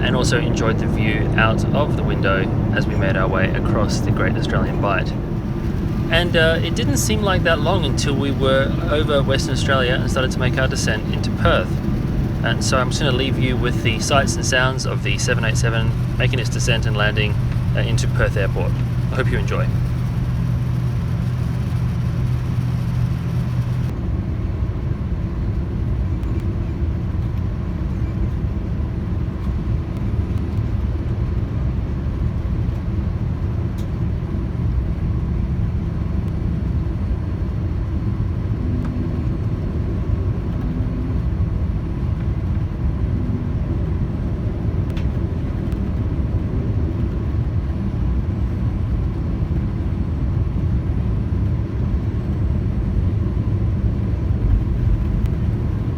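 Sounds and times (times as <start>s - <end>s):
rushing air in cabin: 0.0s - 24.0s, 51.4s - 55.9s
steady hum: 0.0s - 24.0s, 33.5s - 55.9s
aircraft cabin rumble: 0.0s - 55.9s.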